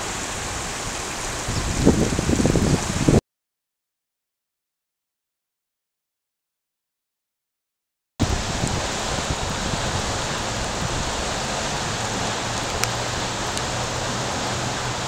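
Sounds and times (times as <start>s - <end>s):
rain falling on shallow water: 0.0s - 3.2s, 8.2s - 15.0s.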